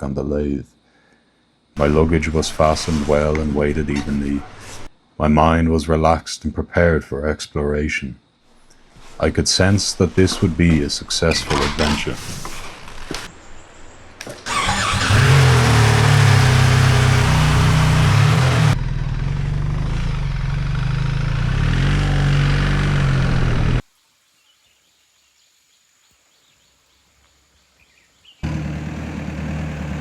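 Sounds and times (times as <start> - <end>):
motorcycle engine running: 1.8 - 4.9, 14.5 - 23.8, 28.4 - 30.0.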